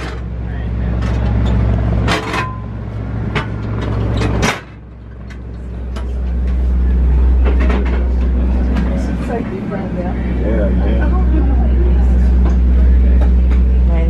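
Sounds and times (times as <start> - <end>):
train rumble inside coach: 0.0 - 14.0.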